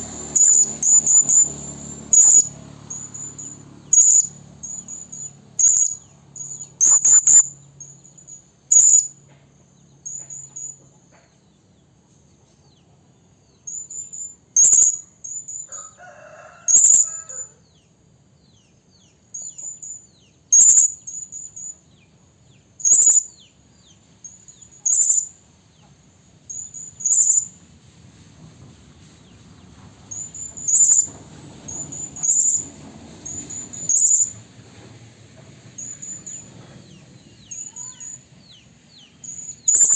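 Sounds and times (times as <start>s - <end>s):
parrot high-pitched chirps: 0.3s - 8.0s, 8.7s - 9.2s, 13.7s - 15.7s, 19.4s - 21.8s, 22.8s - 23.4s, 24.4s - 25.3s, 26.5s - 27.5s, 37.5s - 38.2s, 39.2s - 39.9s.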